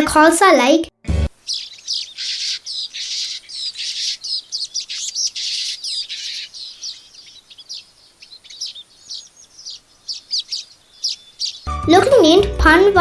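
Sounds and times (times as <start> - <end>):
weavers chirping and chattering: 1.3 - 11.7.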